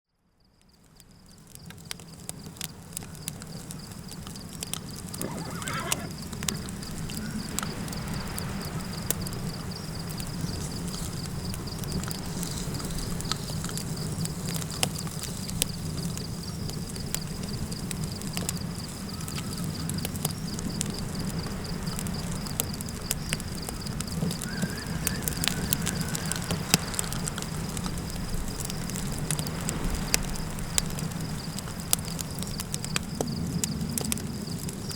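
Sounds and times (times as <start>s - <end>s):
cricket trill: 0.4s - 34.9s
campfire crackling: 0.7s - 34.9s
wavering animal call: 5.2s - 6.2s, 24.3s - 27.4s
low wind rumble: 20.5s - 32.2s.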